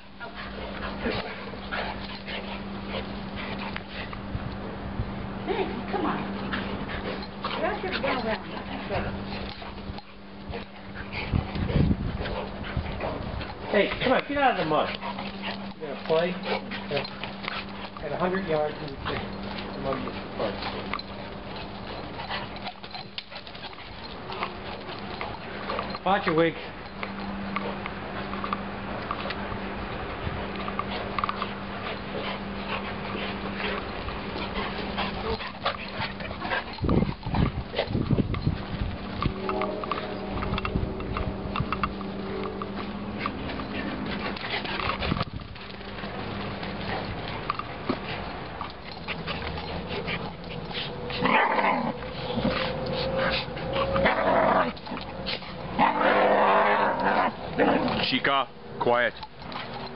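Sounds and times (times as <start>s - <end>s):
dogs scuffling: 0.0s - 59.9s
steady low hum: 0.0s - 59.9s
dogs barking: 46.0s - 58.2s.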